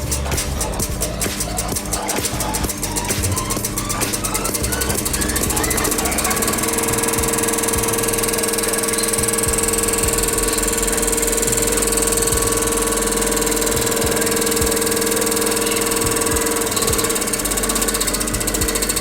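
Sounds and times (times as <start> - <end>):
electric scroll saw humming: 0.0 - 19.0.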